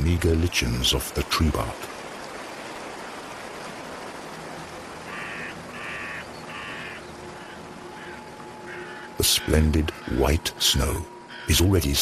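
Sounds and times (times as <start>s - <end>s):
steady hiss: 0.0s - 12.0s
crow cawing: 5.0s - 9.2s.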